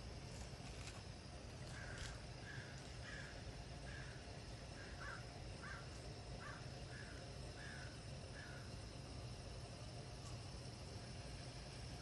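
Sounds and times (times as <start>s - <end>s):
low background hum: 0.0s - 12.0s
bird calling: 1.7s - 4.2s, 4.8s - 8.7s.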